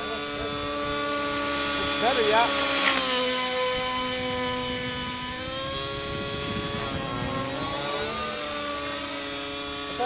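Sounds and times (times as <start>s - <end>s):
model helicopter engine and rotor: 0.0s - 10.0s.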